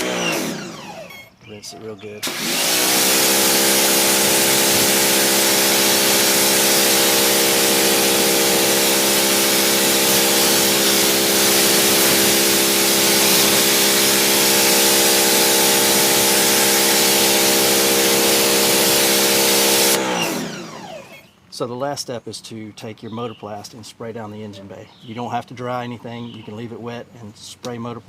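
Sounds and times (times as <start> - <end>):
pressure washer motor humming: 0.0 - 21.2
water jet hissing: 2.2 - 20.3.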